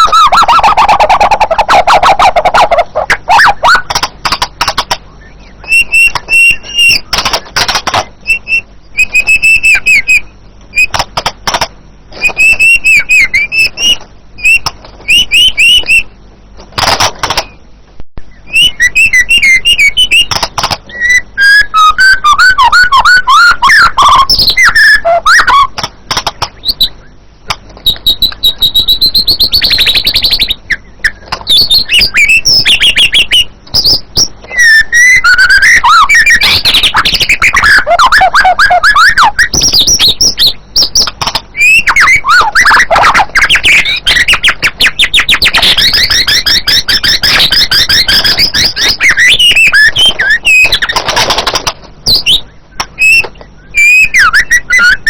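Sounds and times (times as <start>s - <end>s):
bird singing whistled phrases: 0.0s - 3.9s, 5.1s - 7.4s, 8.2s - 11.0s, 12.2s - 16.2s, 18.2s - 25.7s, 26.6s - 27.2s, 27.8s - 51.0s, 52.0s - 55.0s.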